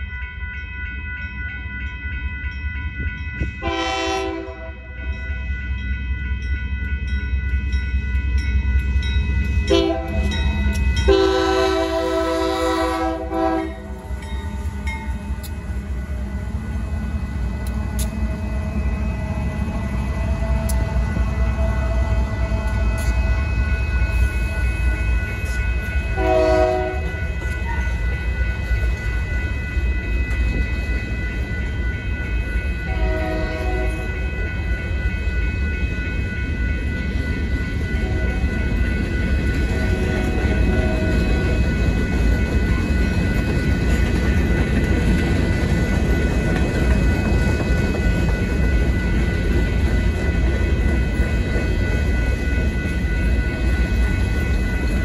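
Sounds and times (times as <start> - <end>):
crossing bells ringing: 0.0 - 55.0
freight train wheels rumbling on rail: 0.0 - 55.0
locomotive horn blasts: 3.6 - 4.9, 9.7 - 10.3, 11.1 - 14.0, 26.2 - 27.1, 32.9 - 34.2.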